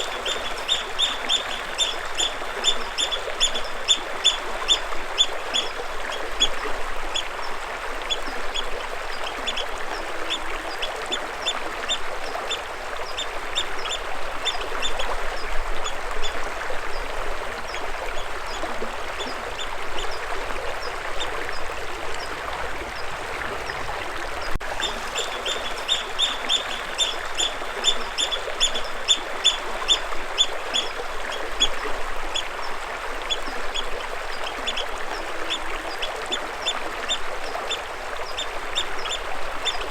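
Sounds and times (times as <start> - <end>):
bird chirping: 0.0 - 4.4, 24.8 - 29.6
running water rushing: 0.0 - 39.9.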